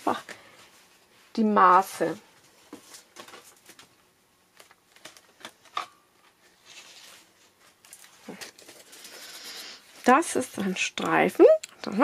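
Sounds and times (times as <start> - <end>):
paper rustling: 2.7 - 10.2.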